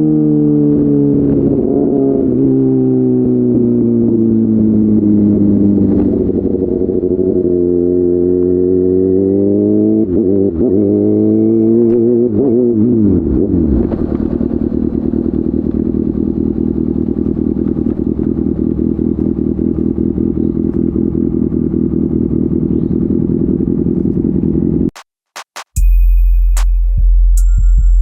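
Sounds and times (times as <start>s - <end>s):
motorcycle engine idling: 4.2s - 7.8s, 13.2s - 24.9s.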